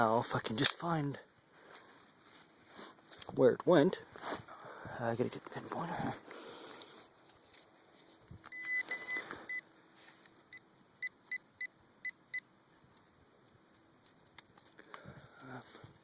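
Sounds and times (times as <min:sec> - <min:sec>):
metal detector beeping: 0:08.5 - 0:09.6.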